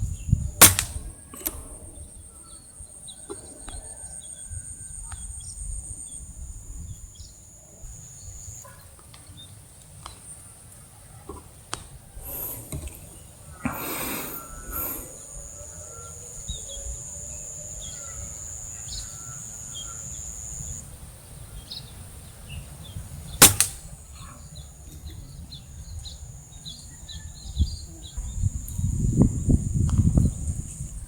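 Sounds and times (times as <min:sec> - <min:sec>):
air rifle shot: 0:00.6 - 0:01.8, 0:23.4 - 0:24.0
small birds chirping: 0:11.7 - 0:31.0.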